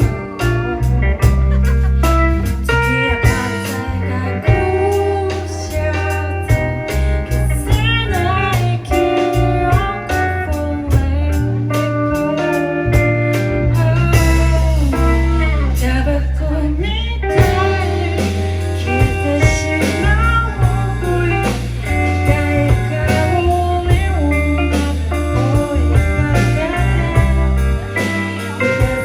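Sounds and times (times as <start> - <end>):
blues band playing: 0.0 - 29.0
guitar bending notes: 0.0 - 29.0.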